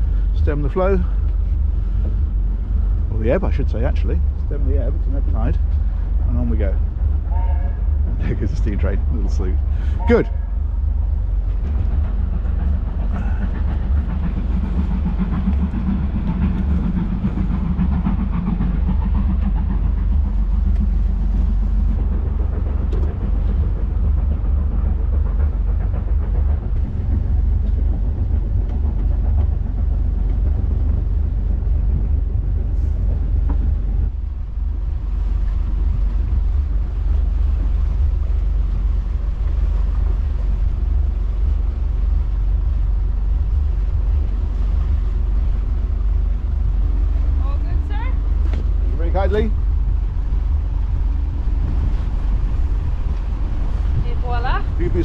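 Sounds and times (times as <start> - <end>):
boat engines rumbling: 0.0 - 55.0
wind rumbling on microphone: 0.0 - 55.0.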